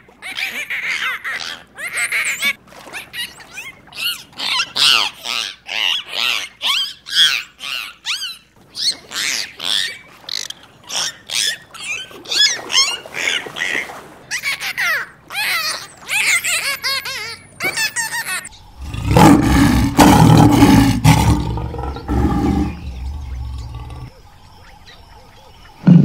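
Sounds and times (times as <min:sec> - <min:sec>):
pigs squealing: 0:15.3 - 0:24.1.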